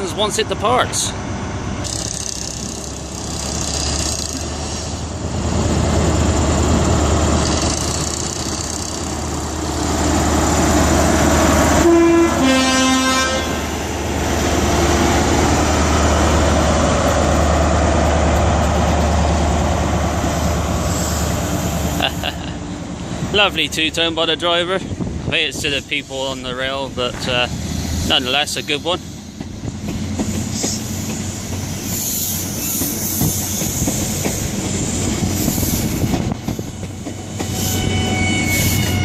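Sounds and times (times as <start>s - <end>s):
diesel locomotive running: 0.0s - 39.0s
two-tone train horn: 11.8s - 13.6s, 37.6s - 39.0s.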